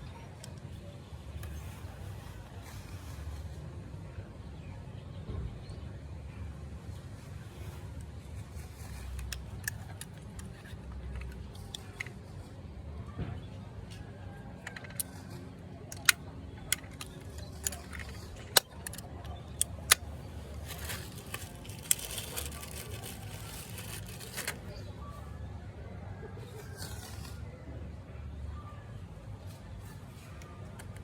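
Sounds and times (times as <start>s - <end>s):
clicks of small hard objects: 14.6s - 24.8s.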